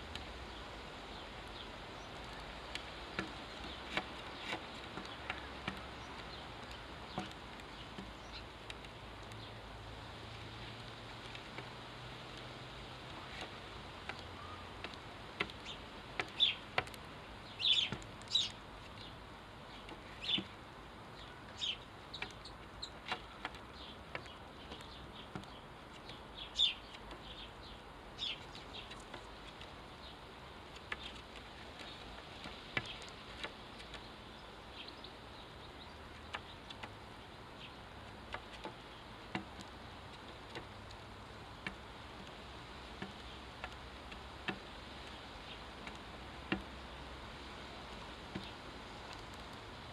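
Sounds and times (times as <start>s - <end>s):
sparrows chirping: 0.5s - 9.7s, 13.1s - 39.2s.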